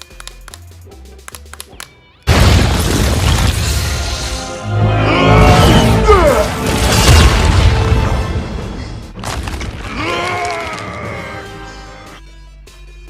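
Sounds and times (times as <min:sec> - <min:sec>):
cinematic music with booming hits: 0:02.3 - 0:10.1.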